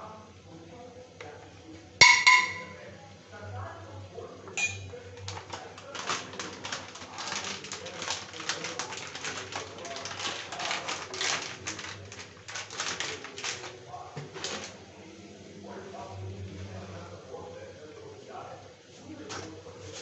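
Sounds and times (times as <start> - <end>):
food crackling and popping in oil: 4.6 - 13.7.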